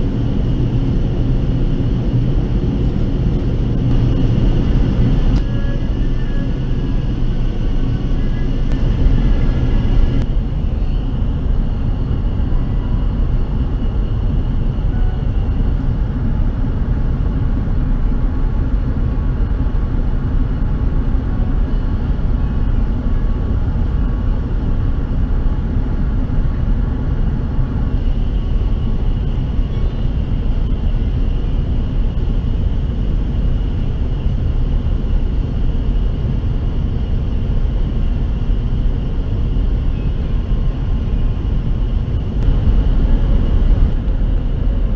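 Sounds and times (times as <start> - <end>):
airliner cabin engine roar: 0.0 - 44.9
faint steady whine: 0.0 - 44.9.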